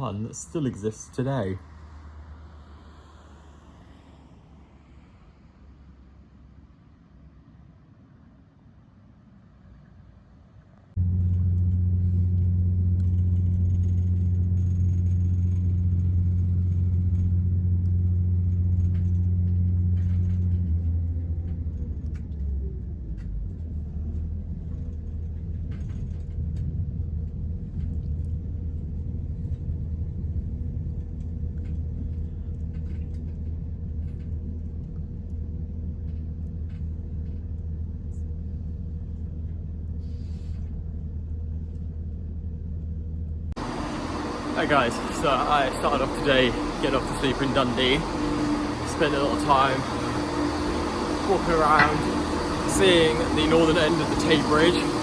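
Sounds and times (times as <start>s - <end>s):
train rumbling: 11.0s - 34.8s, 43.6s - 55.0s.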